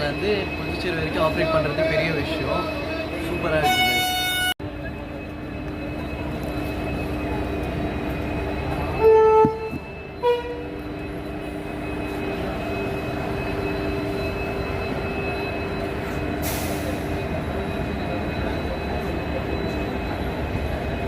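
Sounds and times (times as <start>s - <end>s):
passenger train running: 0.0s - 21.0s
locomotive horn blasts: 3.6s - 4.6s, 9.0s - 10.8s.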